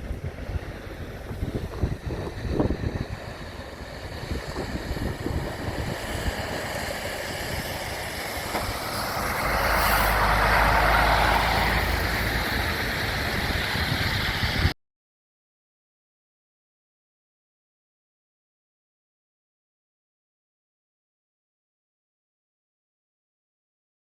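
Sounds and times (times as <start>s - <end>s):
heavy vehicle engine running: 0.0s - 14.8s
wind on microphone: 0.0s - 14.8s.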